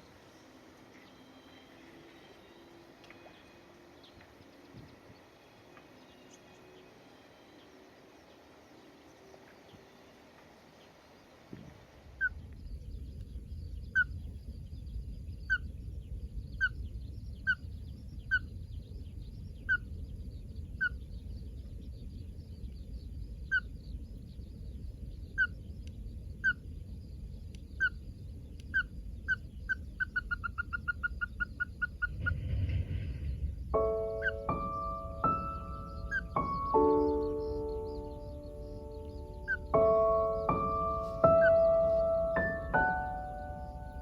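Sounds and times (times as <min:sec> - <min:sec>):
steady low rumble: 0:12.1 - 0:44.0
bird calling sharp notes: 0:33.8 - 0:44.0.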